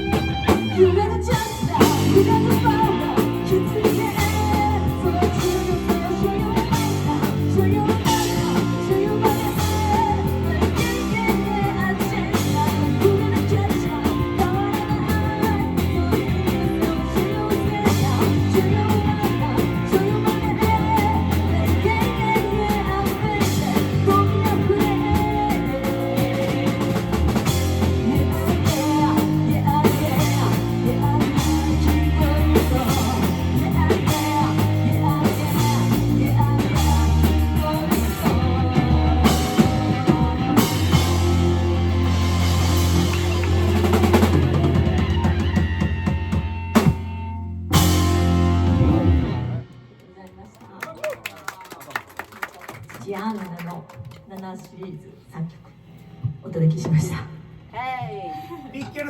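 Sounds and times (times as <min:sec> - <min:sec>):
person singing: 0:00.0 - 0:45.7
bass guitar: 0:00.0 - 0:50.2
drum kit: 0:00.0 - 0:50.2
electric guitar: 0:00.0 - 0:50.4.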